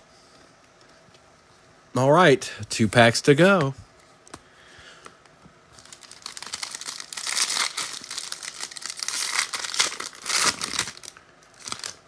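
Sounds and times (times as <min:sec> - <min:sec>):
wrapper tearing and crinkling: 0:05.8 - 0:12.0.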